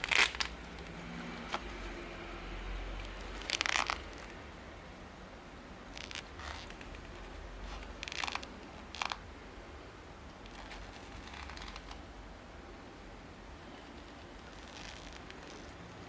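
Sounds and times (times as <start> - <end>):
low steady hum: 0.0 - 16.0
handling rustling and scraping: 13.7 - 16.0.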